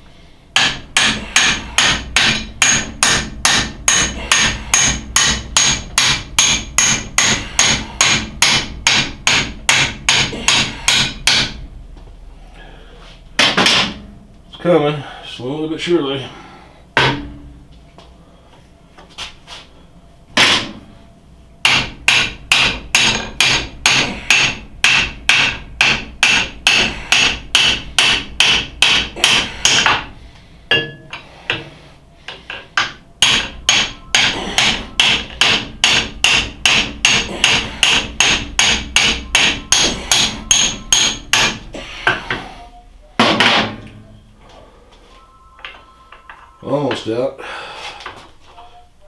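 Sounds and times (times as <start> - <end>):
hammer blows on metal: 0.6 - 11.6, 32.3 - 42.4.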